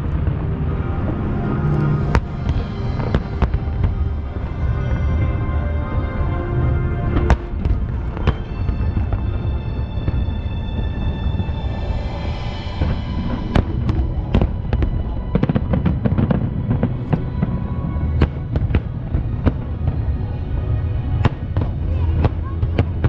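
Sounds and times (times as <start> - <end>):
low rumble: 0.0 - 23.0
music: 0.0 - 23.0
fireworks cracking and banging: 2.0 - 4.6, 7.2 - 11.5, 12.8 - 23.0.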